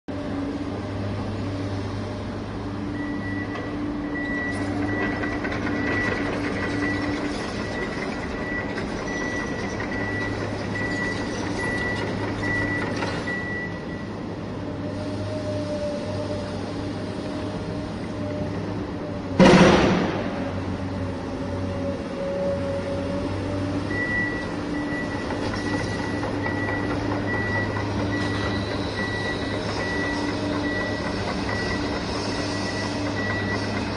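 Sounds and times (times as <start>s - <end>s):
reversing beeper beeping: 3.0s - 14.2s, 23.9s - 33.8s.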